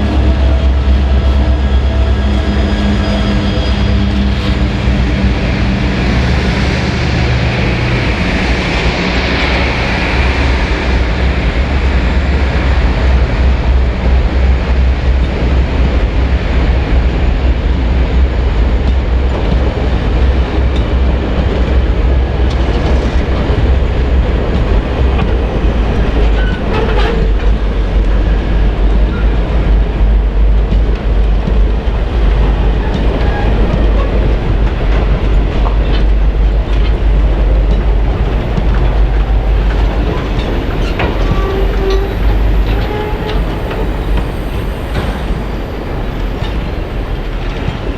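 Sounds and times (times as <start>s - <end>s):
diesel train engine rumble: 0.0s - 47.9s
train wheels clicking over rail joints: 0.0s - 47.9s.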